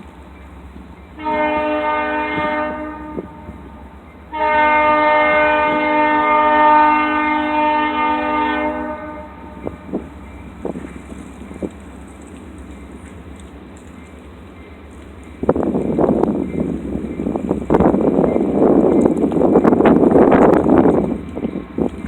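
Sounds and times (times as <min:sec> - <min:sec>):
diesel engine rumble: 0:00.0 - 0:22.0
locomotive air horn blasts: 0:01.2 - 0:03.6, 0:04.3 - 0:09.9.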